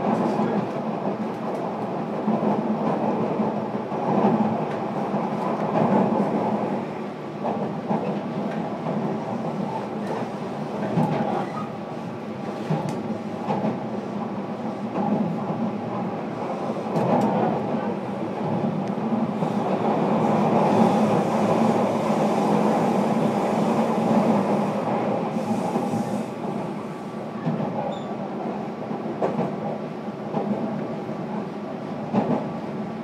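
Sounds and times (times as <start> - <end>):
rail joint clacks: 7.4 - 11.8, 14.9 - 21.7.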